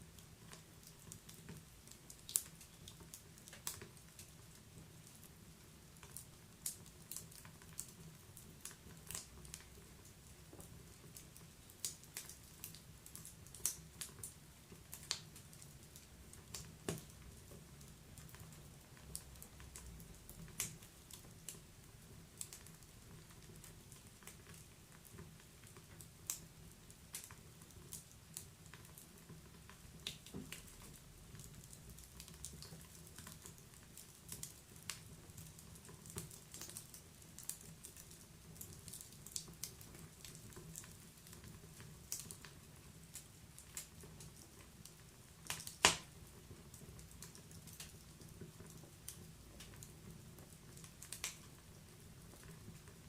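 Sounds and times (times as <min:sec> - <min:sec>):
logs popping and snapping: 0:45.5 - 0:46.1.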